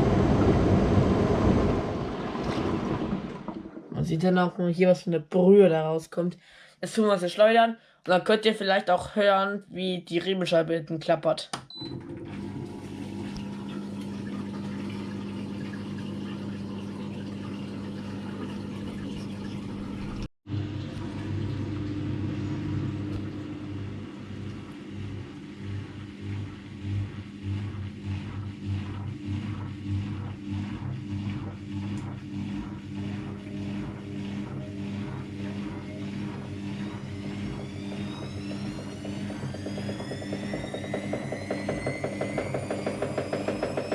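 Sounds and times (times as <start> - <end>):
drum spinning whine: 0.0 - 4.1, 18.2 - 43.9
washing machine motor hum: 0.0 - 4.8, 11.7 - 43.9
rhythmic knocking: 24.9 - 43.9.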